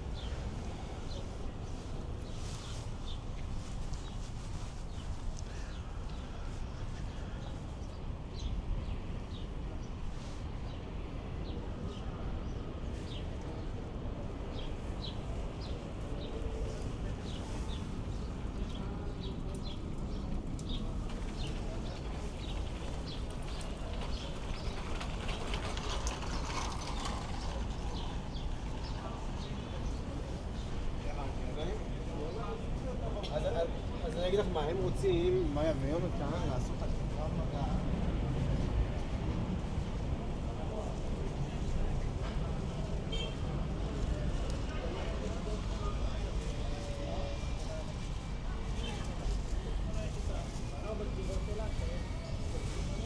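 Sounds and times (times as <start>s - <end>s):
faint hubbub: 0.0s - 53.0s
low market rumble: 10.8s - 53.0s.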